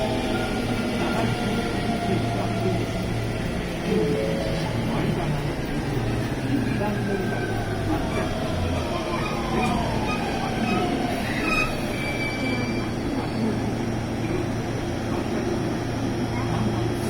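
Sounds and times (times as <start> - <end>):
train wheel squeal: 7.1 - 13.8.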